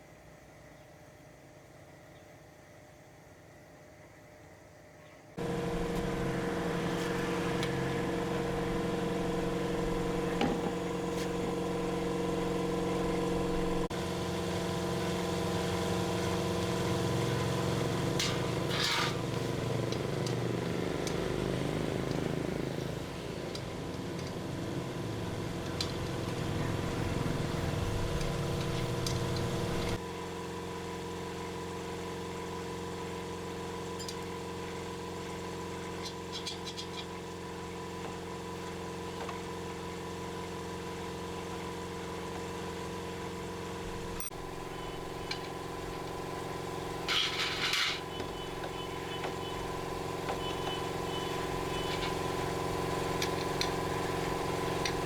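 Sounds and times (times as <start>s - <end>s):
motorcycle engine revving: 5.4s - 30.0s, 43.4s - 55.0s.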